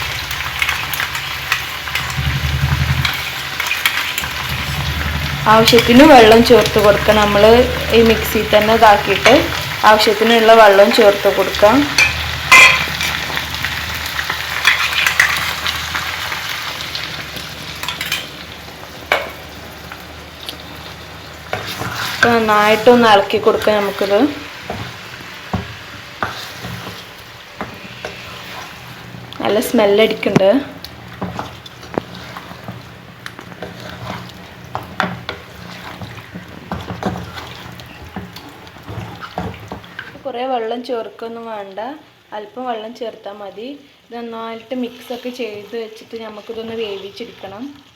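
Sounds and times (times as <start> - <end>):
curry sizzling in a pan: 0.0 - 47.9
utensil clinking against pan: 12.0 - 12.9.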